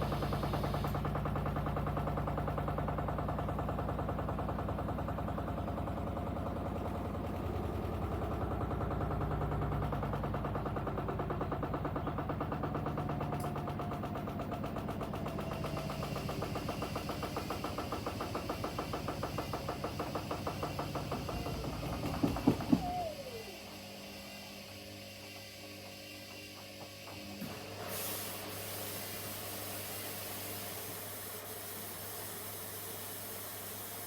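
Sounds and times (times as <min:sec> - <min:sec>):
washing machine drum pulsing: 0:00.0 - 0:23.8.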